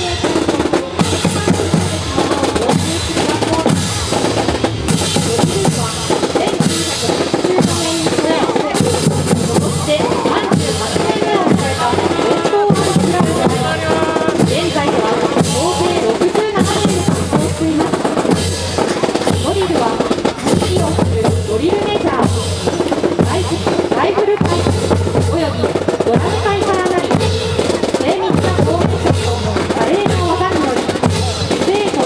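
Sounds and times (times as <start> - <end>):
drum kit beat: 0.0 - 32.0.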